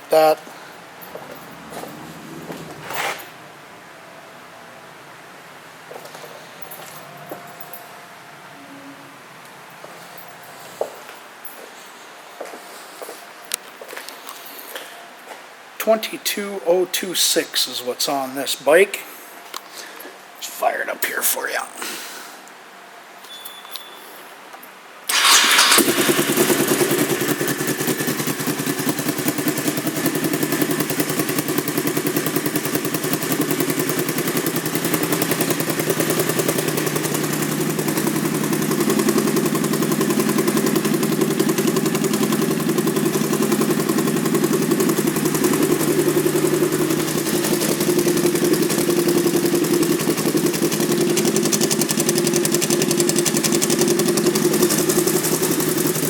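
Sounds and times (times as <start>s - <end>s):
motorcycle engine idling: 25.1s - 56.0s.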